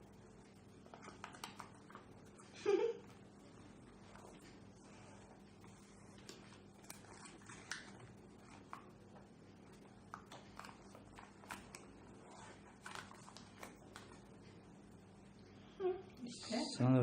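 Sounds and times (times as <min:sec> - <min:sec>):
paper taps and rustles: 0:06.2 - 0:14.3.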